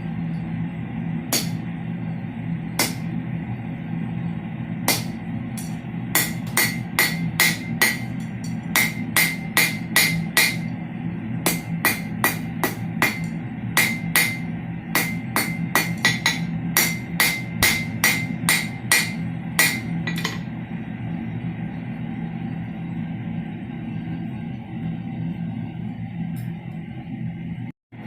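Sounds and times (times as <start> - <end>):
hammer striking steel on anvil: 1.3 - 1.7, 2.8 - 3.1, 4.9 - 10.8, 11.4 - 20.6.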